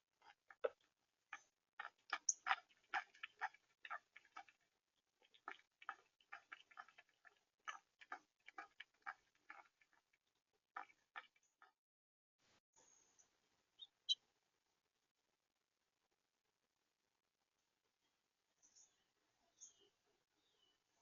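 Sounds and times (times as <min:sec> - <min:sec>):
sharp ticks and taps: 0:01.4 - 0:04.6.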